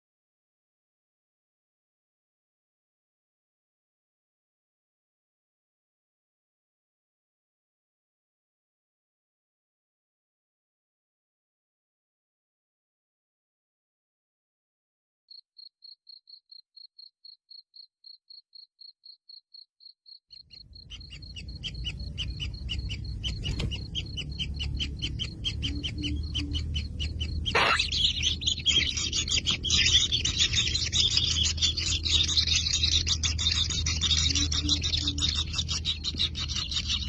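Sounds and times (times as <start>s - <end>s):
nestlings buzzy chirping: 20.3s - 37.0s
thin high chirp: 20.3s - 37.0s
low rumble: 20.6s - 37.0s
sharp sound: 27.5s - 28.0s.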